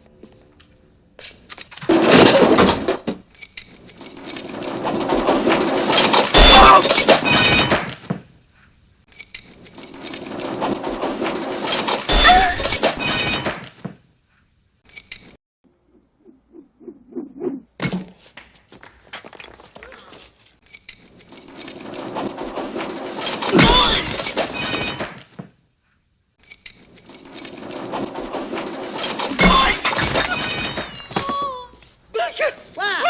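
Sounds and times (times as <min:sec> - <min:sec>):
iron clattering down a chute: 0:04.4 - 0:08.0, 0:10.4 - 0:13.6, 0:22.0 - 0:25.2, 0:27.6 - 0:31.4.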